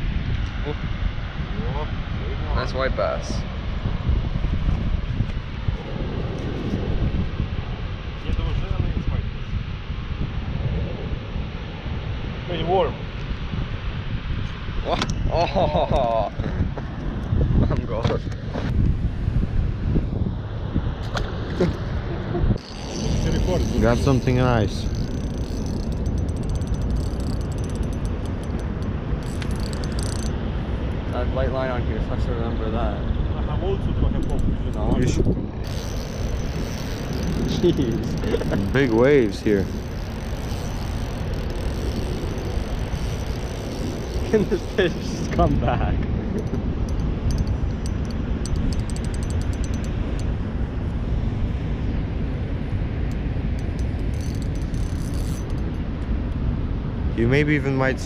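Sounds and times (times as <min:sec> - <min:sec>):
wind and water rumble: 0:00.0 - 0:58.0
fishing reel clicking: 0:22.6 - 0:30.3, 0:35.6 - 0:45.4, 0:46.9 - 0:50.3, 0:53.6 - 0:55.8.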